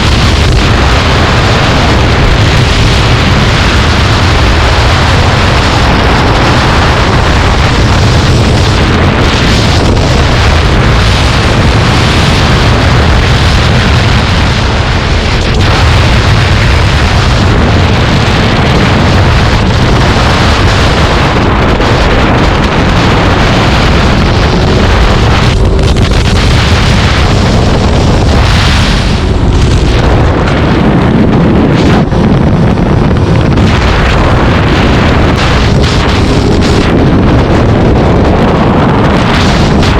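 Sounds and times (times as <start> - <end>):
vehicle engine running: 0.0 - 39.9
wind rushing over microphone: 0.0 - 39.9.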